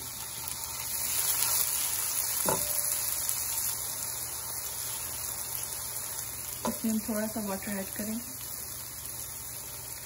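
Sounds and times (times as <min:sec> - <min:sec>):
vegetables sizzling in hot oil: 0:00.0 - 0:10.0
spatula stirring in pan: 0:00.5 - 0:07.1.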